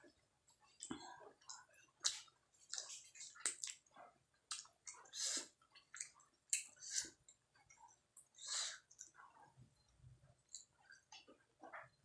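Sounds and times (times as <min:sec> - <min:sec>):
wet chewing of food: 0:00.6 - 0:09.5.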